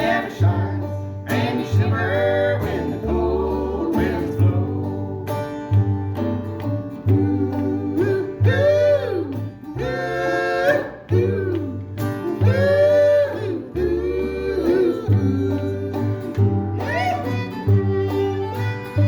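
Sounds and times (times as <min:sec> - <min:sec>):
plucked bass: 0:00.0 - 0:19.0
strummed guitar: 0:00.0 - 0:19.0
sliding string melody: 0:15.0 - 0:19.0.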